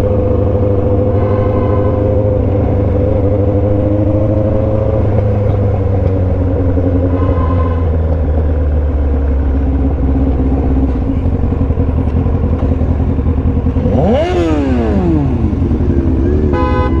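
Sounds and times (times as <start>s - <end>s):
motorcycle engine revving: 0.0s - 17.0s
car horn: 1.0s - 2.5s, 16.2s - 17.0s.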